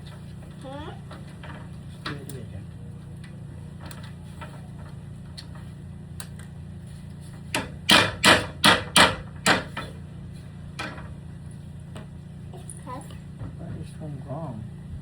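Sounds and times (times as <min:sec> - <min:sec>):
hammer blows on a ladder: 0:07.5 - 0:09.9.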